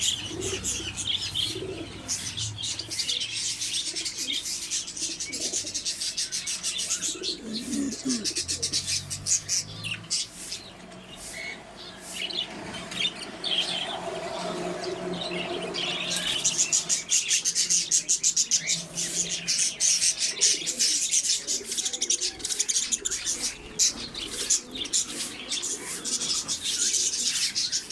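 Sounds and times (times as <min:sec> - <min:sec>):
low bird coo: 0:00.0 - 0:09.9, 0:18.9 - 0:27.9
small birds chirping: 0:00.0 - 0:27.9.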